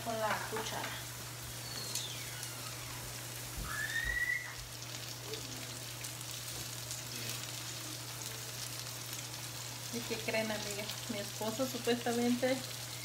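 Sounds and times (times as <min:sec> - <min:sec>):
food sizzling in pans: 0:00.0 - 0:13.0
short rising whistle: 0:03.6 - 0:04.6.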